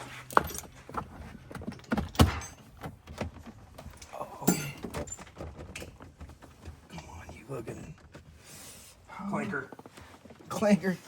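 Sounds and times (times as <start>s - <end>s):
tools and car parts clinking: 0.0s - 6.9s.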